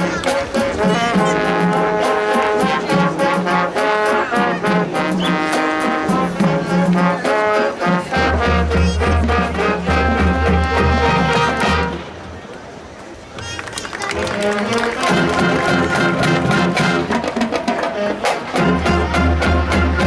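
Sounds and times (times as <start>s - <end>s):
drum strokes: 0.0s - 12.0s, 14.3s - 20.0s
brass section chords: 0.0s - 12.2s, 14.2s - 20.0s
low-brass bass line: 7.8s - 12.1s.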